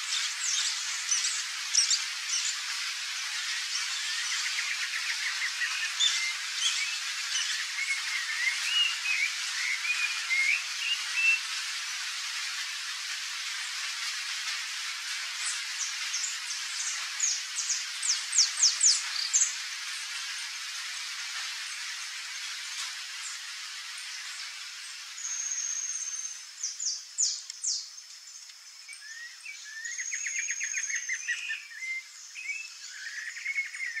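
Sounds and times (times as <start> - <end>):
steady hiss: 0.0 - 34.0.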